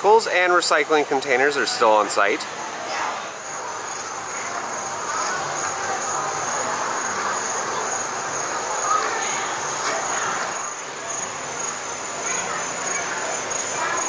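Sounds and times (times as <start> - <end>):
outdoor background noise: 0.0 - 14.0
insects buzzing: 3.4 - 14.0.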